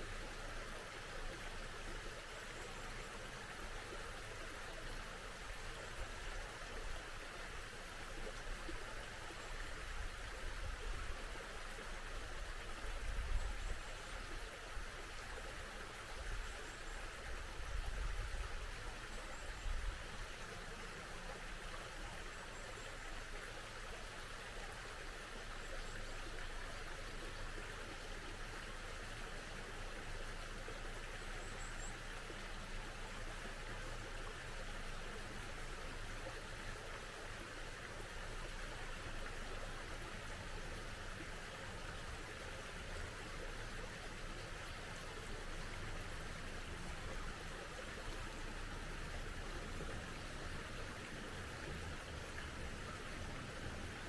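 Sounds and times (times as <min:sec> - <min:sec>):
small stream flowing: 0:00.0 - 0:54.0.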